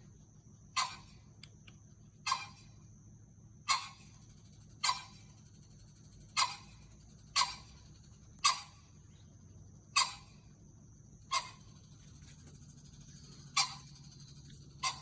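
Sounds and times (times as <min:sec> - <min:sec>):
pheasant calling: 0:00.8 - 0:01.2, 0:02.2 - 0:02.7, 0:03.7 - 0:04.2, 0:04.8 - 0:05.3, 0:06.4 - 0:07.7, 0:08.4 - 0:08.8, 0:10.0 - 0:10.4, 0:11.3 - 0:11.7, 0:13.5 - 0:14.0, 0:14.8 - 0:15.0.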